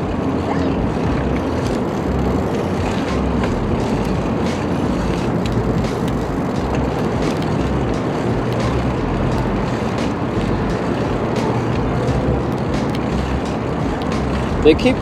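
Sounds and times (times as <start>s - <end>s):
bicycle ticking: 0.0s - 15.0s
wind buffeting microphone: 0.0s - 15.0s.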